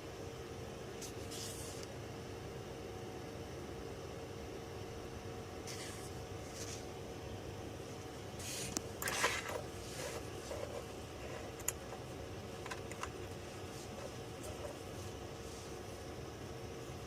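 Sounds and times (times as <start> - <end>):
scraping rustle: 8.4 - 12.0.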